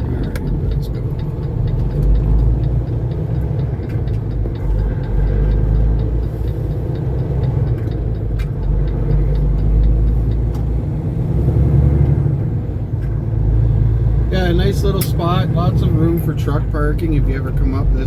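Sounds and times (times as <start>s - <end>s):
faint regular ticking: 0.0s - 12.2s
diesel truck engine rumble: 0.0s - 18.0s.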